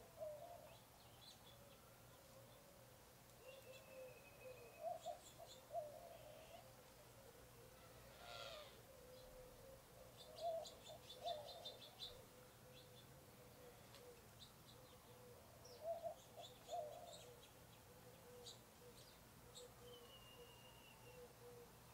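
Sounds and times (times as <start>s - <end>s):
faint steady hum: 0.0s - 21.9s
drawn-out bird whistle: 3.4s - 5.2s, 19.6s - 21.4s
birds calling: 3.4s - 6.8s, 7.4s - 21.9s.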